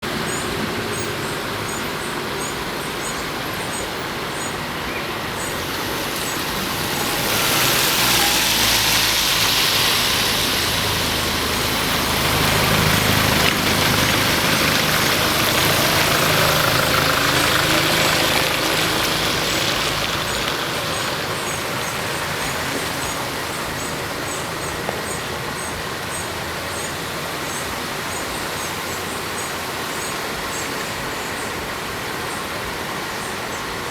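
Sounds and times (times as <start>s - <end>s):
vehicle engine passing slowly: 0.0s - 33.3s
steady wash of noise: 0.0s - 33.9s.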